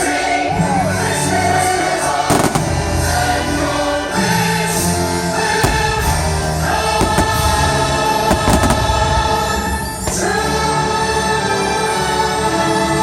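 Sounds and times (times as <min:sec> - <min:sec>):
choir singing sustained chords: 0:00.0 - 0:13.0
orchestral soundtrack: 0:00.0 - 0:13.0
firework bangs: 0:02.3 - 0:03.8, 0:05.4 - 0:10.8.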